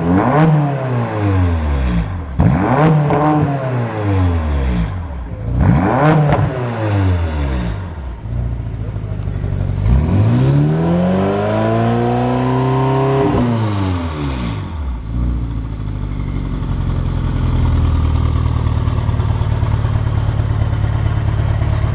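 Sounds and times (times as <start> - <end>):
car engine revving and idling: 0.0 - 21.9.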